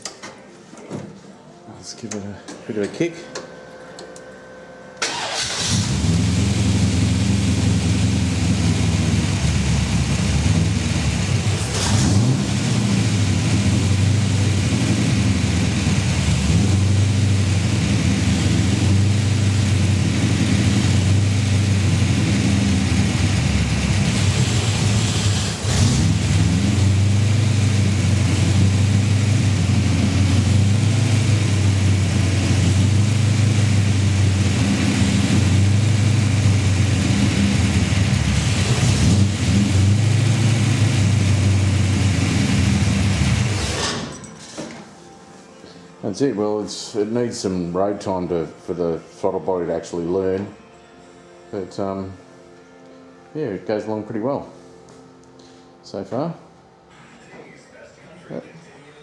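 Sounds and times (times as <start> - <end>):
engine revving hard: 5.0 - 43.9.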